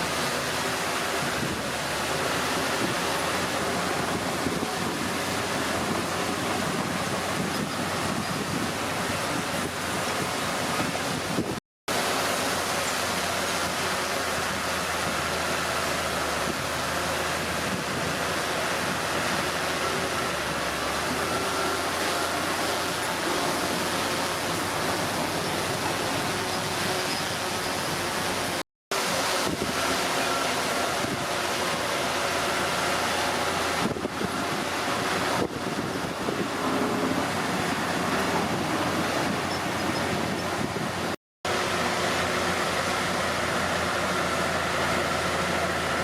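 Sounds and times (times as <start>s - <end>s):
wind noise on microphone: 0.0s - 11.6s, 14.4s - 41.2s
bulldozer diesel engine running: 0.0s - 46.0s.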